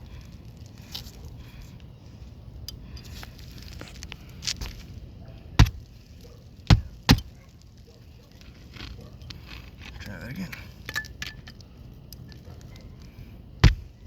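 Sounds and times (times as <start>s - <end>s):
sharp knocks: 5.6s - 5.8s, 13.6s - 13.9s.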